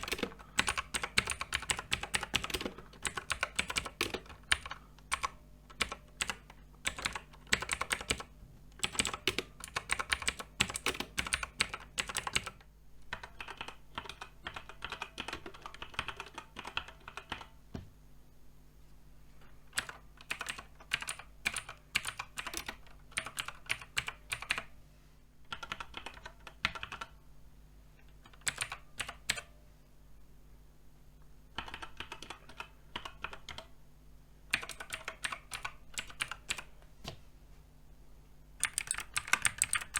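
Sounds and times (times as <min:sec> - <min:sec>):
mechanical keyboard typing: 0:00.0 - 0:17.6, 0:19.7 - 0:24.7, 0:25.5 - 0:27.2, 0:28.1 - 0:29.5, 0:31.5 - 0:33.7, 0:34.5 - 0:36.7, 0:38.6 - 0:39.9.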